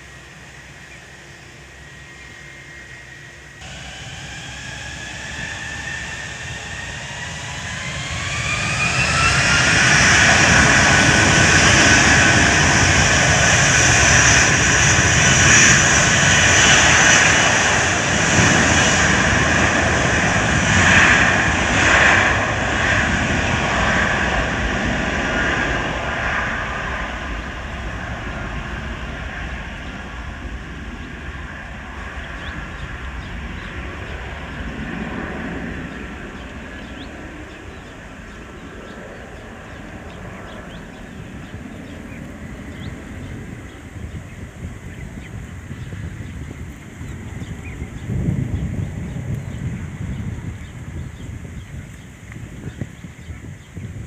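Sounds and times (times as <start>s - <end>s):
jet engine whine: 0.0s - 54.0s
jet engines roaring at takeoff: 0.0s - 54.0s.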